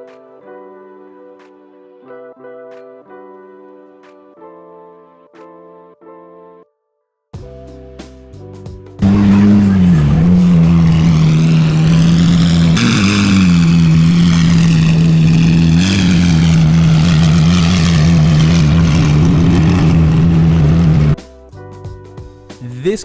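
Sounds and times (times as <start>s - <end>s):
car engine running loudly: 9.0s - 21.2s.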